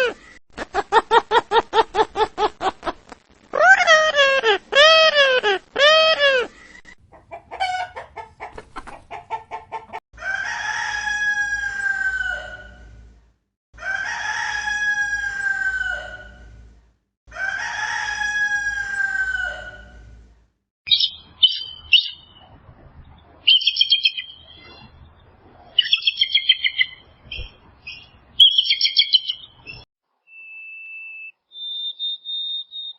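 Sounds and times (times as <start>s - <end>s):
chicken clucking: 3.6s - 10.0s
rooster crowing: 10.2s - 12.8s, 13.8s - 16.4s, 17.3s - 19.8s
high-pitched bird chirping: 20.9s - 22.5s, 23.5s - 24.9s, 25.7s - 32.9s.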